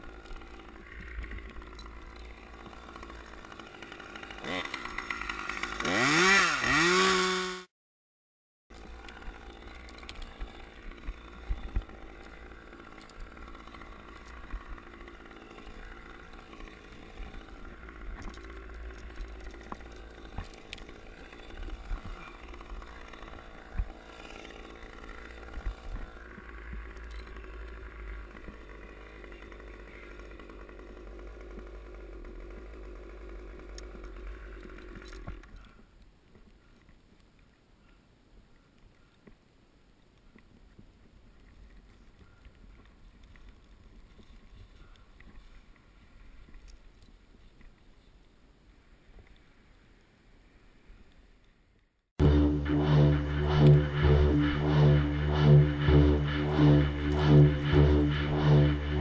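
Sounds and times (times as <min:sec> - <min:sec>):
chainsaw running: 0:00.0 - 0:07.7, 0:08.7 - 0:35.7, 0:52.2 - 0:59.0.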